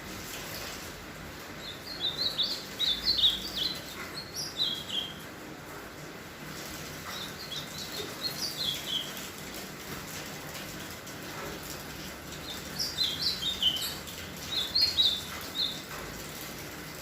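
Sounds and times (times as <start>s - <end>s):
bird singing warbled phrases: 1.6s - 5.2s, 7.0s - 9.2s, 12.4s - 15.8s.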